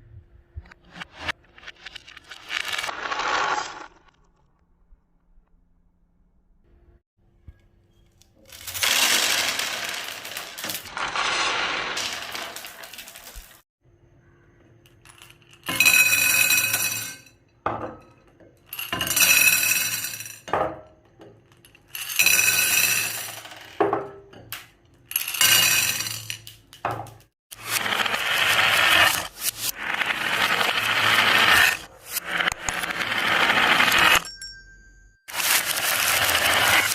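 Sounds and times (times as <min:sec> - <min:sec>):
marbles rolling on wooden track: 0:01.2 - 0:04.1, 0:08.4 - 0:13.6, 0:14.9 - 0:17.2, 0:18.7 - 0:20.5, 0:21.4 - 0:34.3, 0:35.3 - 0:36.9
marbles clinking: 0:02.2 - 0:04.0, 0:08.5 - 0:13.6, 0:27.6 - 0:34.4, 0:35.3 - 0:36.9.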